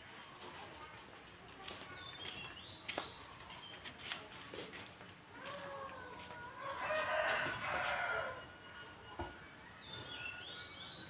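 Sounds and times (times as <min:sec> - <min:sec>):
birds chirping: 0:01.6 - 0:04.3, 0:05.7 - 0:11.0.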